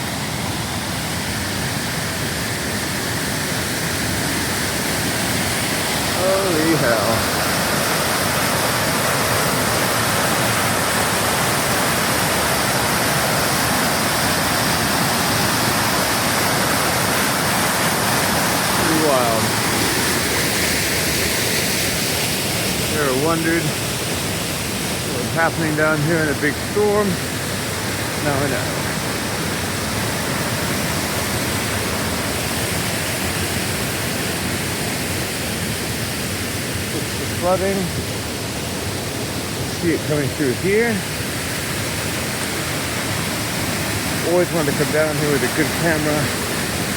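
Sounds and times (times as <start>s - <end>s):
waterfall and floodwater rushing: 0.0s - 46.9s.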